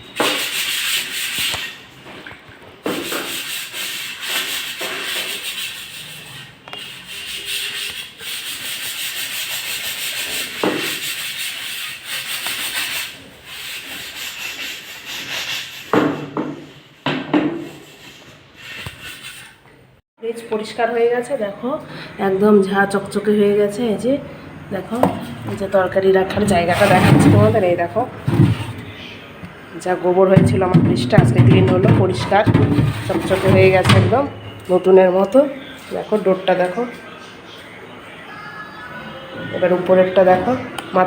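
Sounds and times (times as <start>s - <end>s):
hand scrubbing surface: 17.7s - 19.6s, 24.7s - 29.2s, 30.3s - 34.8s
knocks: 25.0s - 29.0s, 30.4s - 34.6s.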